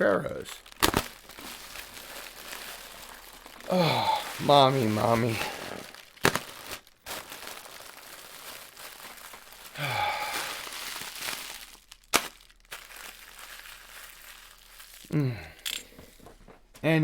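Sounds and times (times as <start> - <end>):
plastic packing material crinkling: 0.0 - 16.4
sigh-like voice: 3.7 - 4.6, 9.8 - 10.4, 15.1 - 15.6.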